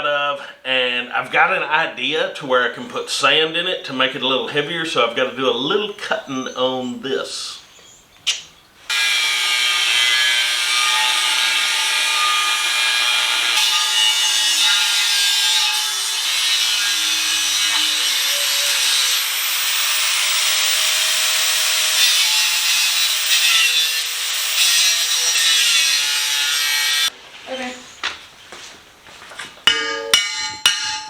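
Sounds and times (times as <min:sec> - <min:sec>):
power tool cutting steel: 0:08.9 - 0:27.1.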